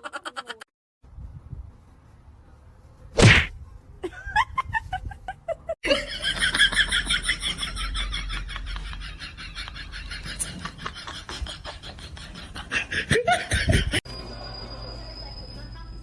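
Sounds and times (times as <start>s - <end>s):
loud whack: 3.2s - 3.5s.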